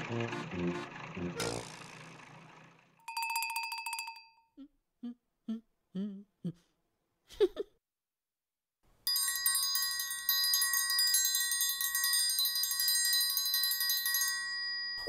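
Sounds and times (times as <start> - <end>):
triangle roll ringing: 3.0 - 4.4.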